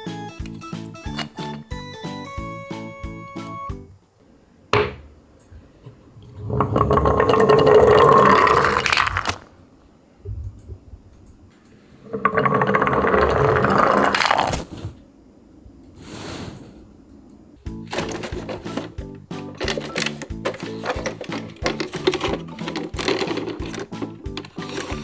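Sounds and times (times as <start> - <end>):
toy truck rolling on wood: 6.4 - 9.5, 12.0 - 14.7, 17.9 - 25.0.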